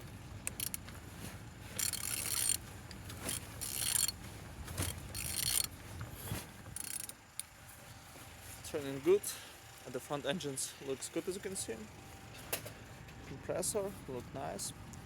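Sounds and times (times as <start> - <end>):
wrench ratcheting and clicking: 0.4 - 0.8, 1.8 - 2.6, 3.2 - 4.1, 4.8 - 5.7, 6.8 - 7.5.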